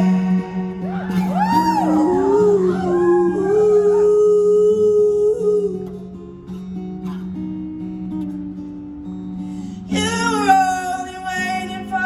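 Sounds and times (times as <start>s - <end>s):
audience whooping: 0.0s - 4.8s
strummed acoustic guitar: 0.0s - 12.0s.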